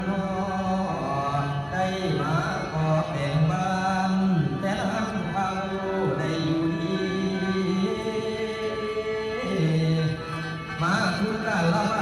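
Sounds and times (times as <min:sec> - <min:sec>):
solo voice chant-like singing: 0:00.0 - 0:12.0.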